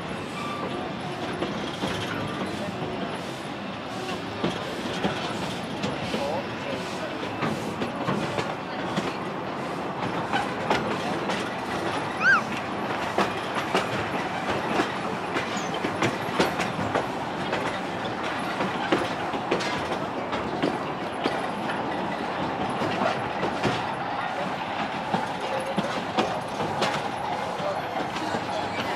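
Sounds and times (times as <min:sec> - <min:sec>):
steam train rumbling: 0:00.0 - 0:28.9
wheels clicking over rail joints: 0:07.1 - 0:28.9
high squeal: 0:12.1 - 0:12.5.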